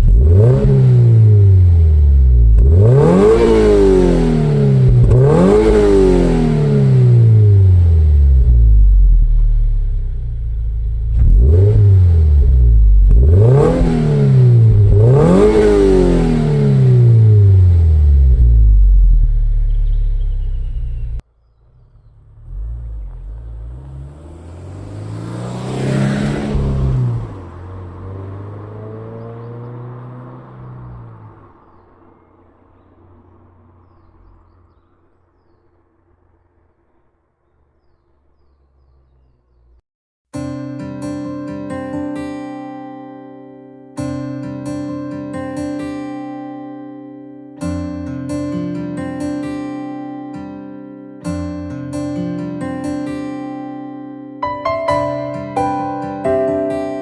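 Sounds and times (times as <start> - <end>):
car exhaust revving: 0.0 - 39.8.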